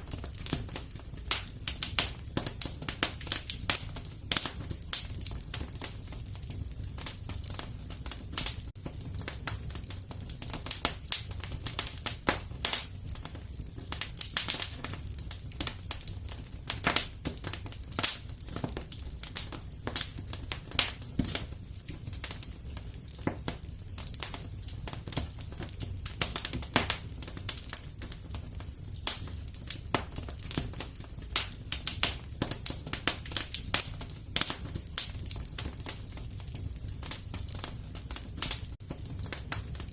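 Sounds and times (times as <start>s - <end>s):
wood fire crackling in fireplace: 0.0s - 39.9s.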